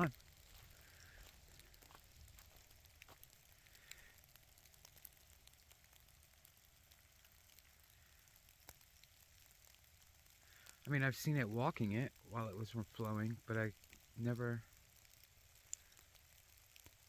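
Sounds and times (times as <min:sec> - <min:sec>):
faint outdoor hiss: 0:00.0 - 0:17.0
light ticks: 0:15.1 - 0:16.2.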